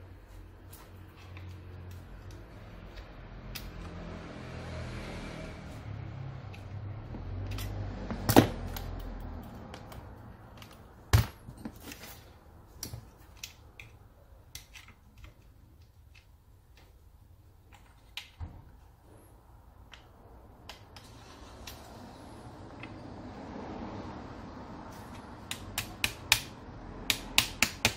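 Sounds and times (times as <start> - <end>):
tools and parts clicking on workbench: 7.4 - 17.0.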